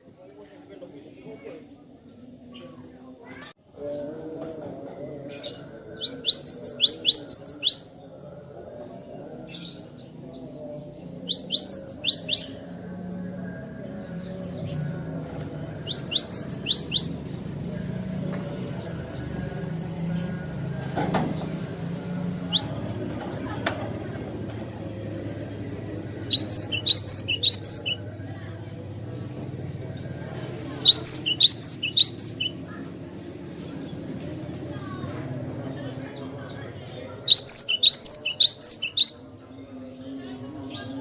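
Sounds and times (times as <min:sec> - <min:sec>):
bird singing sharp whistles: 0:26.3 - 0:28.0.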